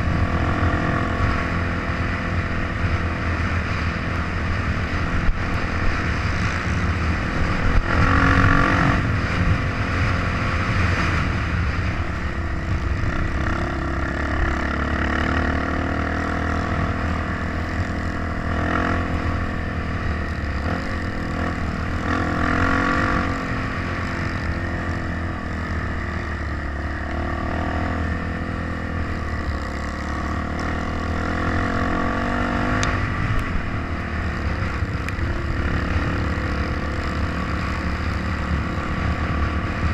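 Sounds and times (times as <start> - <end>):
dirt bike engine revving: 13.0 - 17.5, 25.7 - 33.3.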